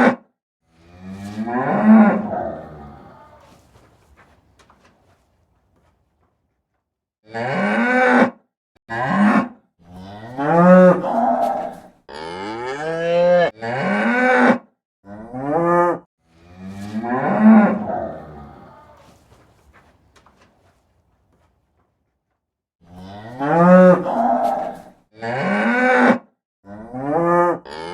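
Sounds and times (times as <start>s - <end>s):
cows mooing: 0.7s - 3.7s, 7.3s - 8.3s, 8.9s - 19.2s, 22.8s - 27.9s.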